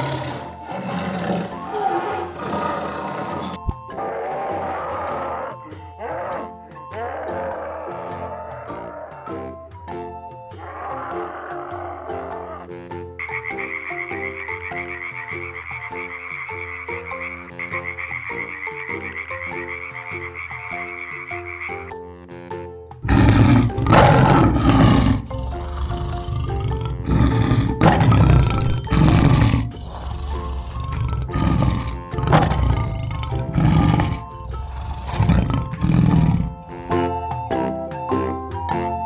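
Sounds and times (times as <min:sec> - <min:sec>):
lion roaring: 0:00.0 - 0:09.3, 0:23.0 - 0:36.8
background music: 0:00.0 - 0:39.0
frog croaking trill: 0:13.2 - 0:21.9.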